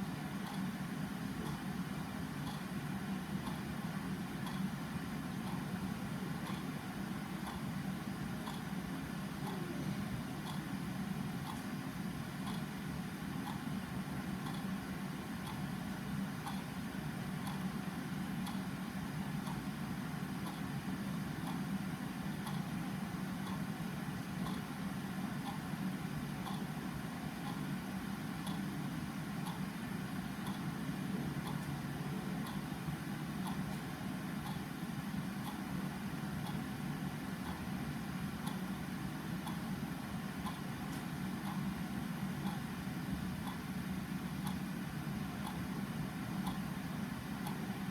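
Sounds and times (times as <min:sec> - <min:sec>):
low background hum: 0:00.0 - 0:47.9
clock ticking: 0:42.4 - 0:42.6, 0:47.4 - 0:47.7.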